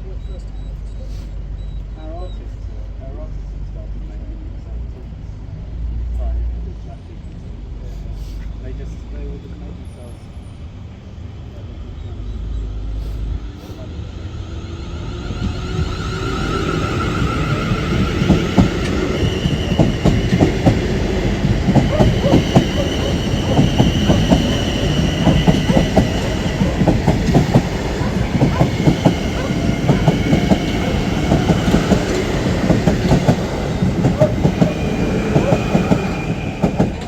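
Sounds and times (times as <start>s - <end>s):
freight train rumble: 0.0s - 37.0s
train wheels clattering over joints: 15.4s - 37.0s.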